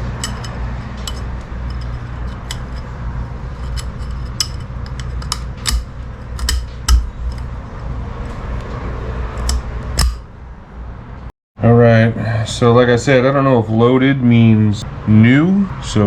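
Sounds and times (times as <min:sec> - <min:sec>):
metal parts clinking: 0:00.0 - 0:07.5, 0:09.4 - 0:10.3
steady low hum: 0:00.0 - 0:12.9.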